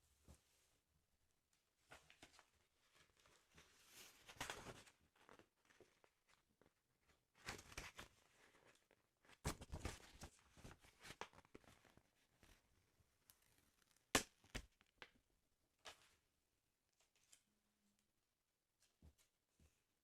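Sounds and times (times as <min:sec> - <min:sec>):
paper rustling and crinkling: 0:01.8 - 0:12.6.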